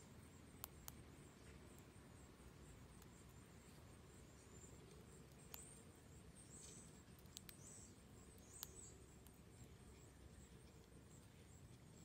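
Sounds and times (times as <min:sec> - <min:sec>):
faint high bird chirps: 0:00.1 - 0:12.0
sharp ticks: 0:07.1 - 0:09.4.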